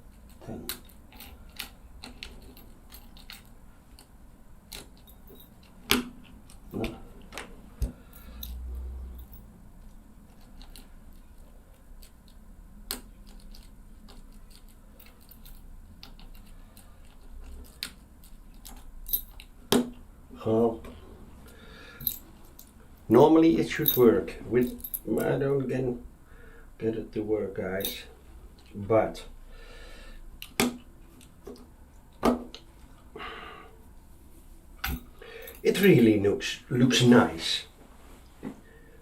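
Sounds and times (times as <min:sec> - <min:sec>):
key and plastic clicking: 0:00.1 - 0:04.1, 0:10.3 - 0:19.6.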